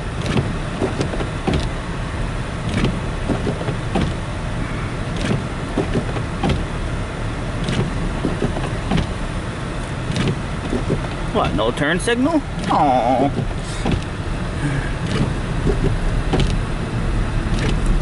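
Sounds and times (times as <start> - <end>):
road and engine rumble: 0.0 - 18.0
knocks and scrapes: 2.7 - 4.2, 5.2 - 6.7, 7.6 - 9.2, 10.1 - 11.2, 15.0 - 16.6.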